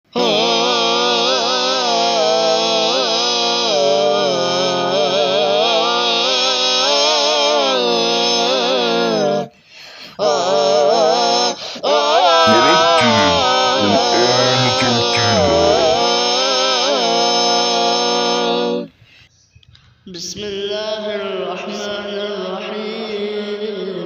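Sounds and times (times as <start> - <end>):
wordless chant-like vocal melody: 12.4 - 16.0.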